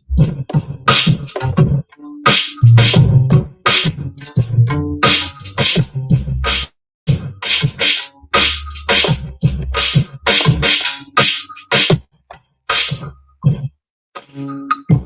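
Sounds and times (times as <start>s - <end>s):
hip-hop beat: 0.0s - 12.0s, 12.7s - 15.0s
deep sub-bass: 2.6s - 5.4s, 6.0s - 6.7s, 8.3s - 10.0s.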